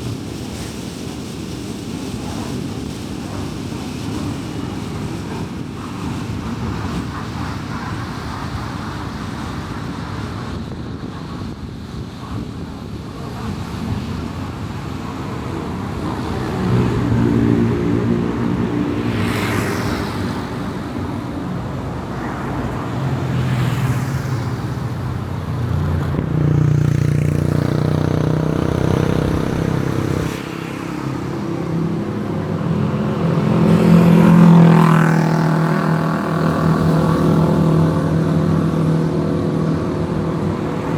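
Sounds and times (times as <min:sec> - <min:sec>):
road and tyre noise: 0:00.0 - 0:40.9
passing traffic swooshes: 0:12.7 - 0:40.9
car engine hum: 0:14.4 - 0:40.9.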